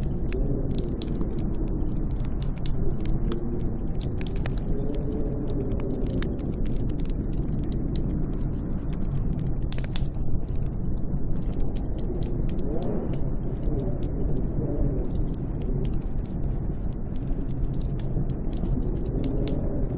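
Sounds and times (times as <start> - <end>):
howling snowstorm wind: 0.0 - 19.9
sharp crackles: 0.0 - 19.9.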